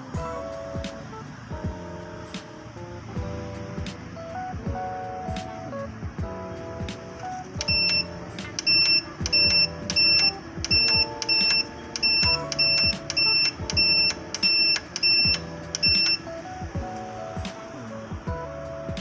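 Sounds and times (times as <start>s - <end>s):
background music: 0.0s - 19.0s
high-pitched electronic beeps: 7.6s - 16.3s.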